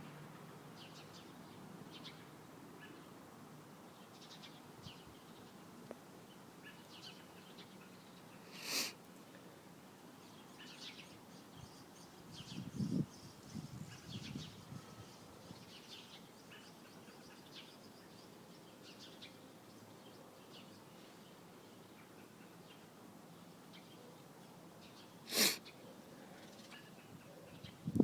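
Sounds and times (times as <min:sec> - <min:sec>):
loud sneeze-like burst: 0:08.6 - 0:09.0, 0:25.3 - 0:25.6
small bird chirping: 0:10.2 - 0:22.8.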